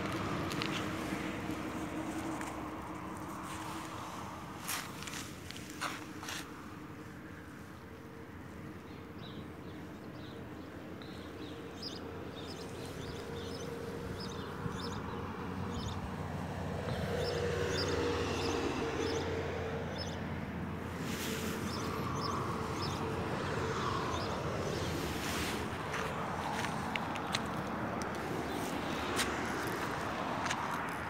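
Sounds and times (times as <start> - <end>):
small birds chirping: 21.0 - 30.0.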